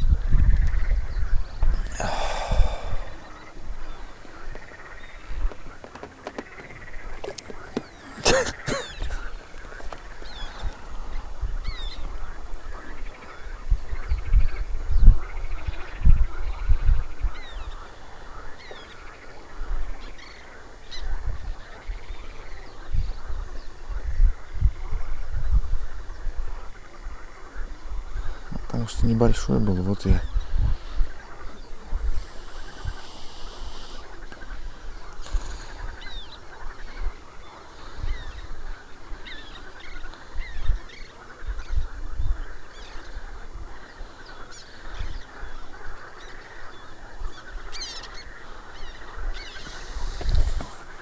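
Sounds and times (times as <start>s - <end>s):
birds chirping and whistling: 6.6s - 12.1s, 47.7s - 50.8s.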